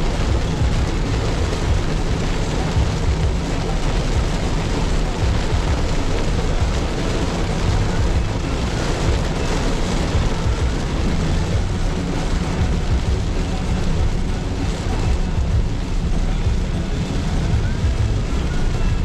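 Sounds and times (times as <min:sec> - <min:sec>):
car cabin road and engine noise: 0:00.0 - 0:19.0.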